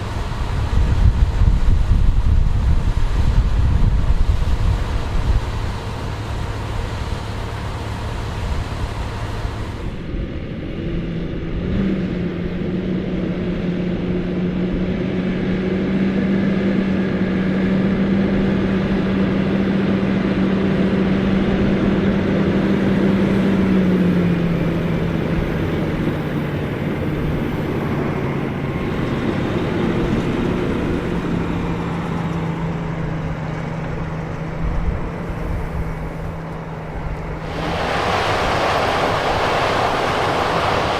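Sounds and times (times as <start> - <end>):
wind on the microphone: 0.0 - 5.9, 34.5 - 40.9
diesel machinery running: 0.0 - 40.9.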